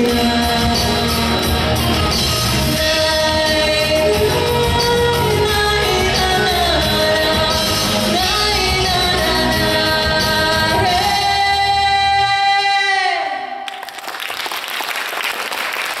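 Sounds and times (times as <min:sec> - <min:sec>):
instrumental backing music: 0:00.0 - 0:12.9
woman singing: 0:00.0 - 0:13.6
applause: 0:13.7 - 0:16.0.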